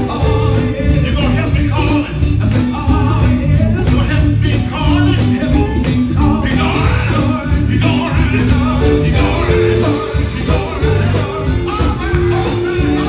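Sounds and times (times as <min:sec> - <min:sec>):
gospel band playing: 0:00.0 - 0:13.0
tambourine: 0:00.0 - 0:13.0
voices singing: 0:00.0 - 0:13.0.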